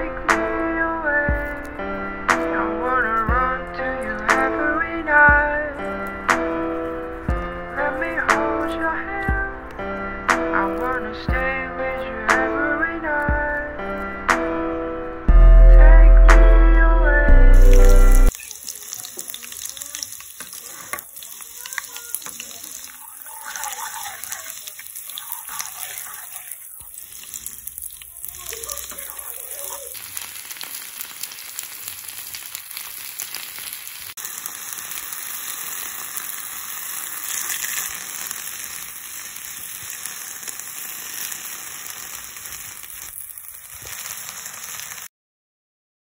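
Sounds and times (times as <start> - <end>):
food sizzling in hot oil: 17.5 - 45.1.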